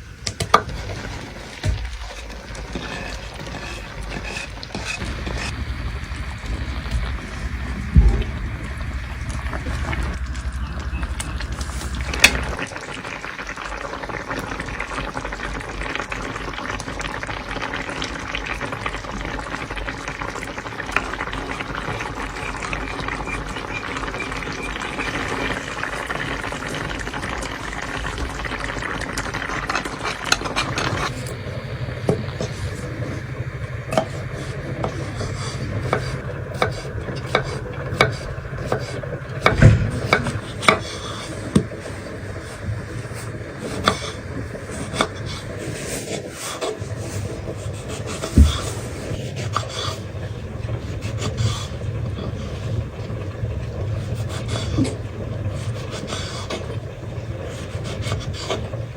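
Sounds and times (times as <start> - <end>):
stirring: 0.0 - 12.7, 29.0 - 41.7
food sizzling in a pan: 0.0 - 50.0
low hum: 2.1 - 13.1, 20.6 - 46.2.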